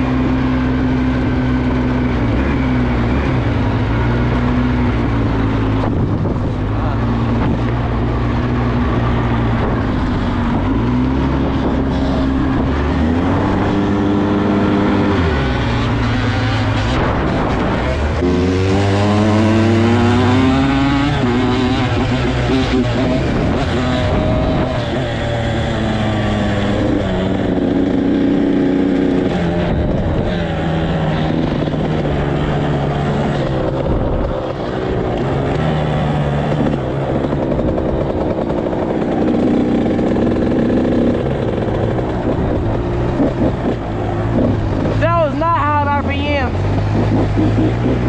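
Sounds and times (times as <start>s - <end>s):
heavy low rumble: 0.0s - 28.4s, 29.2s - 48.0s
off-road vehicle engine running: 0.0s - 48.0s.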